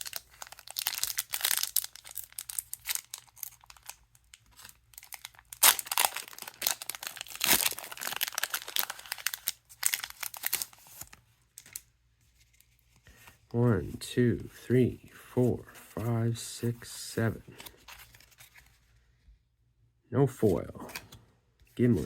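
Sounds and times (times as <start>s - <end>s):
wrapper tearing and crinkling: 0.0s - 11.8s.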